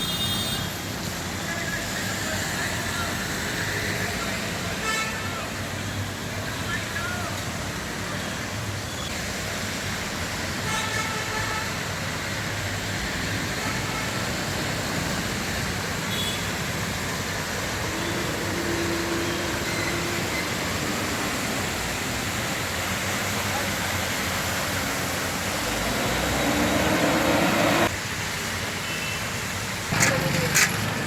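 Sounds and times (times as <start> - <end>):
traffic on wet roads: 0.0 - 31.0
car horns: 16.1 - 16.5.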